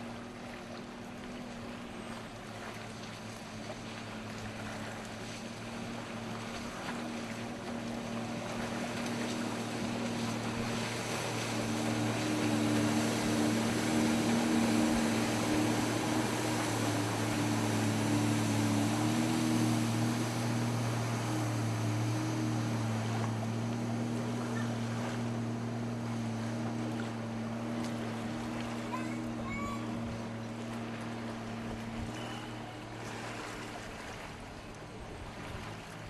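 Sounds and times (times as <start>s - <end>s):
jet ski engine running: 0.0s - 36.0s
water: 0.0s - 36.0s.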